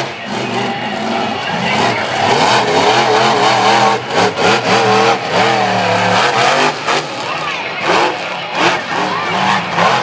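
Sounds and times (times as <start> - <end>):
truck engine revving: 0.0 - 10.0.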